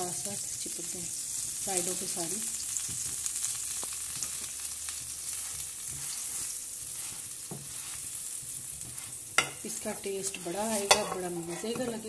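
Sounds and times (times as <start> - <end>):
sandwich sizzling in a pan: 0.0 - 12.0
spatula tapping a pan: 7.4 - 7.8, 8.4 - 9.6, 10.8 - 12.0.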